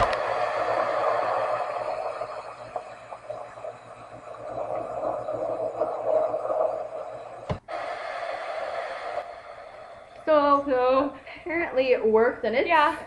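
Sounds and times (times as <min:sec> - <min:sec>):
storm rain hissing: 0:00.0 - 0:11.3.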